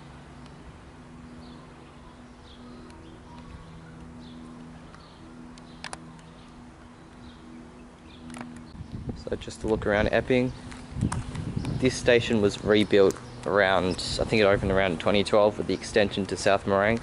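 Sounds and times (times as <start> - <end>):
steady low hum: 0.0 - 17.0
faint bird chirps: 1.3 - 8.8.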